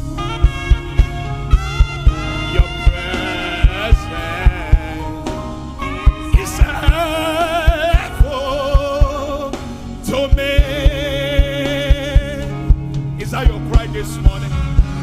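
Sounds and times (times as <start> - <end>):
keyboard chords: 0.0 - 15.0
steady drum beat: 0.0 - 15.0
person singing with vibrato: 0.2 - 14.6.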